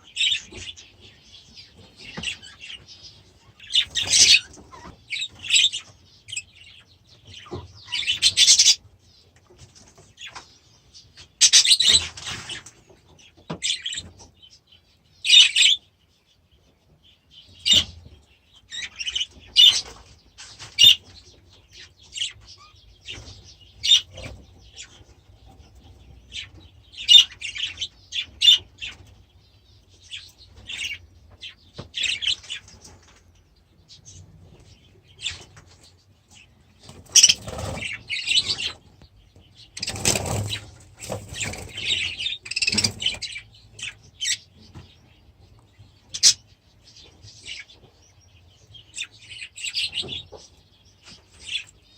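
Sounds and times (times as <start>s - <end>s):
budgerigars chirping: 0.0s - 8.9s, 10.2s - 14.6s, 15.2s - 15.9s, 17.4s - 33.2s, 33.8s - 51.9s.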